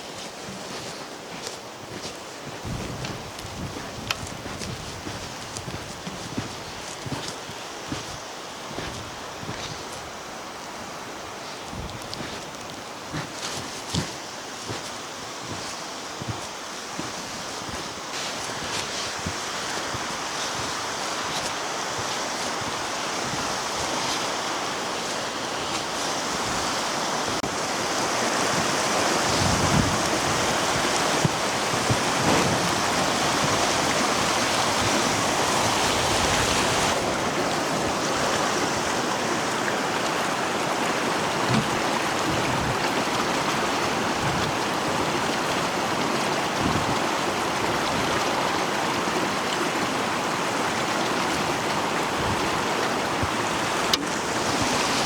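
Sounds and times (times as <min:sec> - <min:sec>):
wind gusts buffeting microphone: 0:00.7 - 0:55.0
strong wind blowing: 0:01.9 - 0:13.2, 0:26.2 - 0:43.0.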